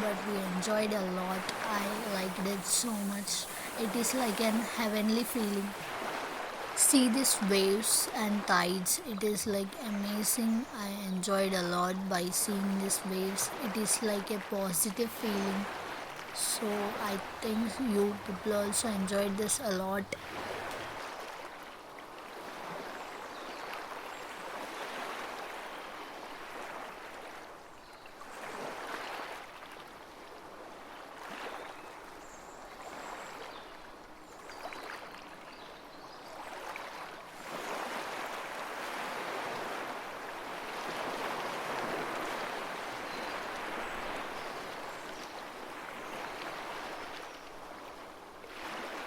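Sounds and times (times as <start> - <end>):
sea surf breaking on beach: 0.0 - 21.6, 37.3 - 49.0.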